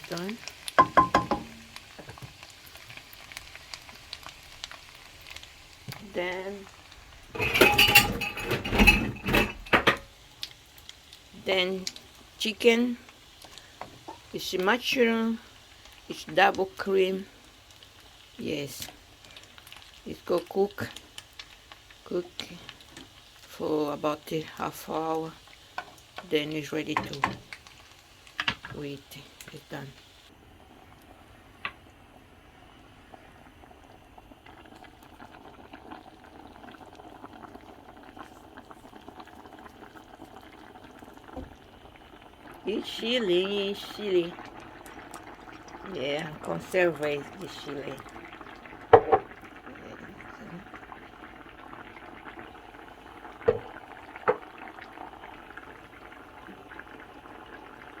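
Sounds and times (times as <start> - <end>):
sauce bubbling in a pan: 0.0 - 58.0
sharp knocks: 0.8 - 1.6.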